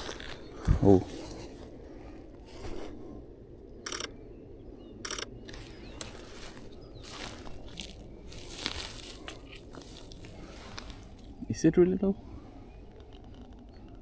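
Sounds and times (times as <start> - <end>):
camera shutter burst clicks: 3.8 - 4.1, 5.0 - 5.6.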